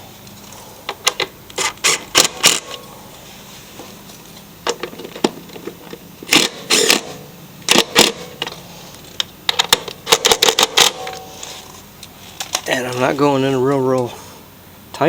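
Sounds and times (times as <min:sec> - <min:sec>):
hand tools clicking and rattling: 0:00.2 - 0:02.9, 0:04.6 - 0:13.2.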